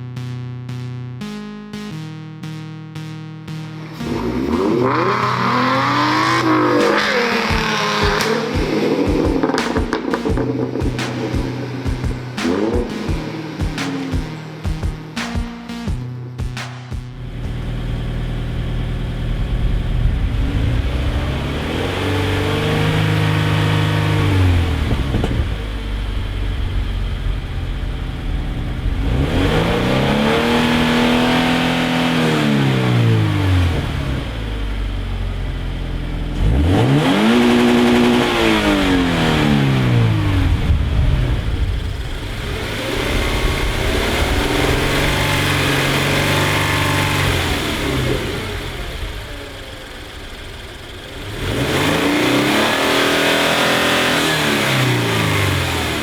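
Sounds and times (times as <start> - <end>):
car engine revving: 0.0 - 16.0, 16.6 - 56.0
engine idling: 17.2 - 56.0.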